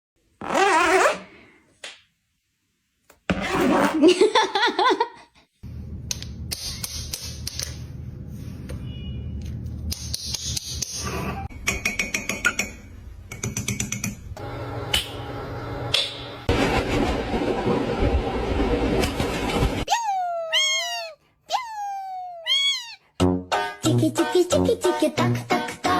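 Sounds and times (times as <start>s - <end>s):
parrot warbling: 19.9s - 23.0s.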